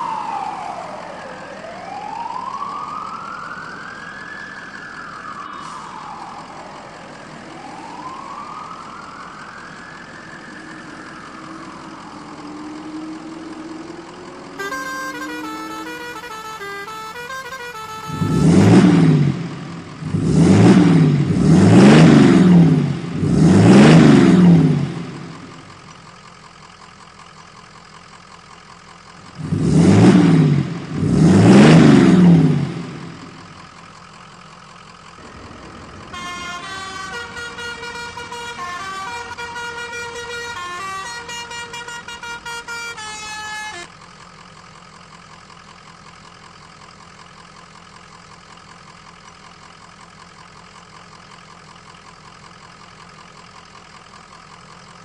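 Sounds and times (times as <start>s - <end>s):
vehicle horn blasts: 14.6s - 19.0s, 35.2s - 43.9s.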